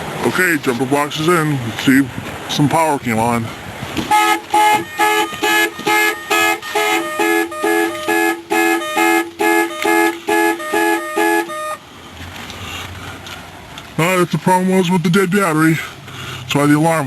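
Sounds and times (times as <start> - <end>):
car alarm horn honks: 4.1 - 11.8.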